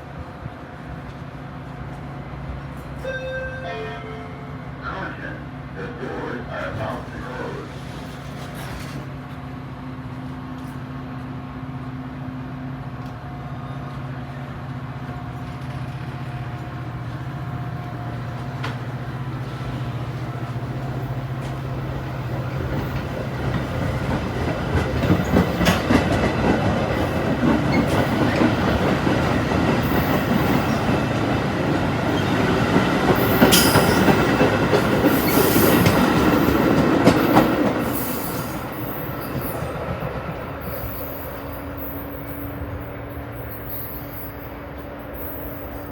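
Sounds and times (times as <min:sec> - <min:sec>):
locomotive engine hum: 0:09.2 - 0:38.0
train wheels clickety-clack: 0:17.8 - 0:45.9.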